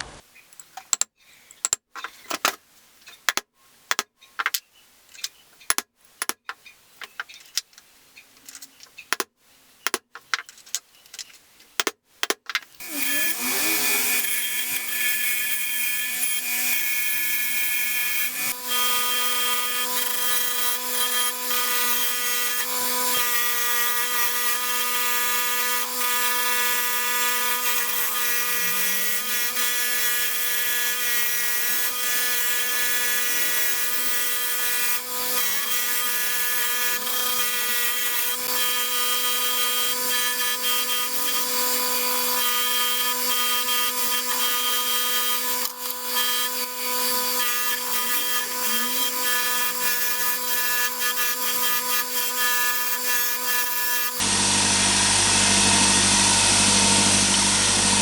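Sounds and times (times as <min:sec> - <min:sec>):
power tool whining: 0:12.8 - 0:58.0.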